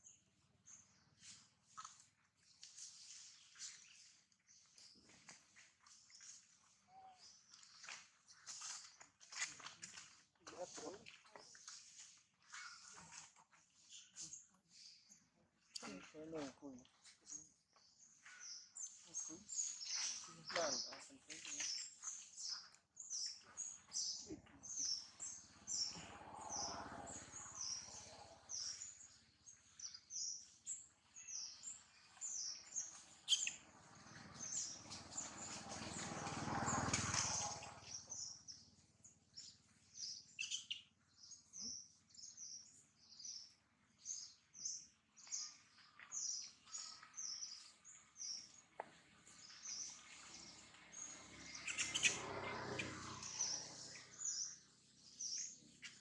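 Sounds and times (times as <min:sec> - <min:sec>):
bird short high chirps: 0:33.2 - 0:33.6, 0:40.4 - 0:40.9.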